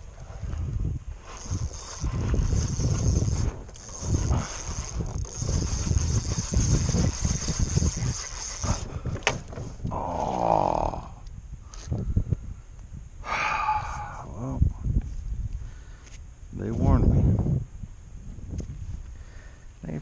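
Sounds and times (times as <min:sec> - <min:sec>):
wind buffeting microphone: 0:00.0 - 0:20.0
short voice-like groan: 0:09.9 - 0:11.2.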